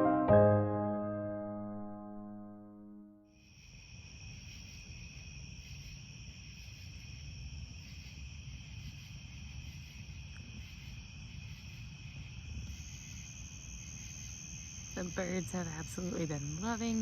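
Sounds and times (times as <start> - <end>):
crickets trilling: 3.4 - 17.0.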